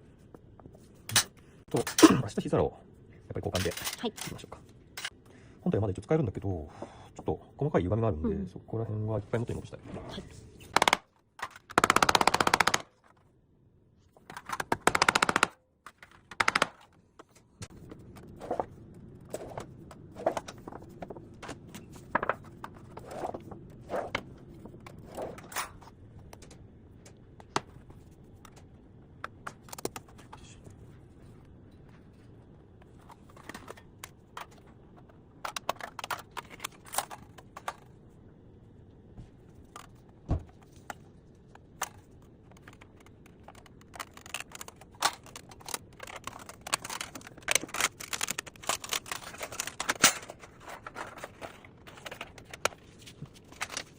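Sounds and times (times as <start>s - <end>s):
metal parts clicking and scraping: 3.5s - 5.2s, 41.8s - 52.7s.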